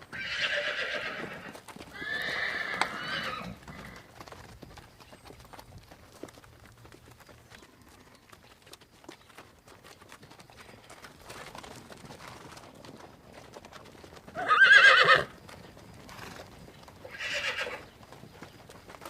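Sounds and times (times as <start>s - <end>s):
faint hoof clops: 0.0s - 19.0s
horse whinnying: 0.1s - 4.1s, 14.3s - 15.4s, 17.0s - 17.9s.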